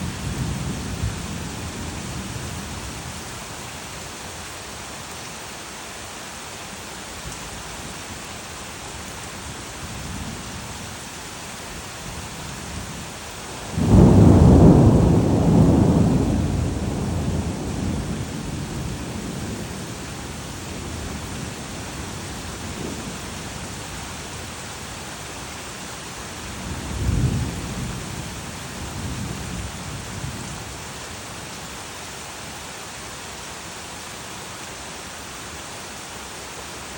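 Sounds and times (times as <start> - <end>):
steady rain: 0.0 - 36.9
thunder rumbling: 13.6 - 23.4, 26.6 - 30.5.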